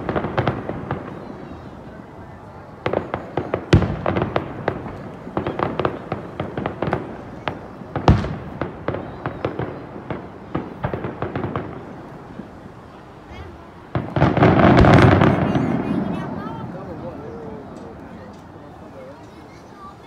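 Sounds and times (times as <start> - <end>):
fireworks bangs and pops: 0.0 - 1.8, 2.7 - 12.6, 13.9 - 18.9
loud fireworks booms: 0.0 - 18.9.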